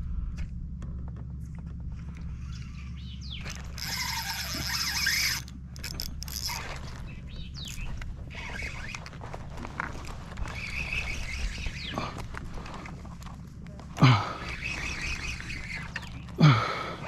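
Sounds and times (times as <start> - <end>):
low rumble: 0.0 - 17.0
fishing reel drag buzzing: 3.4 - 9.4, 10.0 - 12.9, 14.3 - 17.0.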